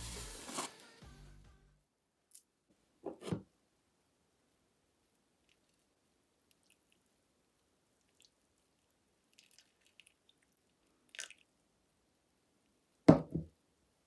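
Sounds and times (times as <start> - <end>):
short scrape: 0.0 - 0.8.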